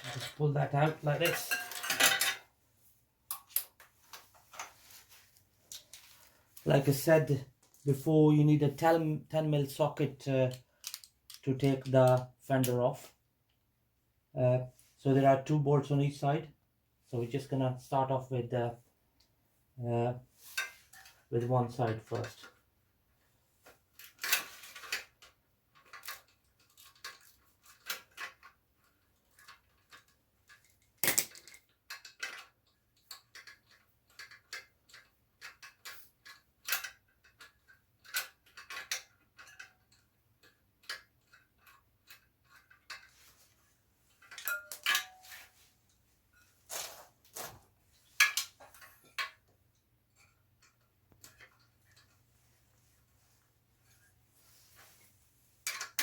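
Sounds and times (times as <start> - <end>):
metal tools clinking: 0.0 - 2.5, 44.2 - 45.7.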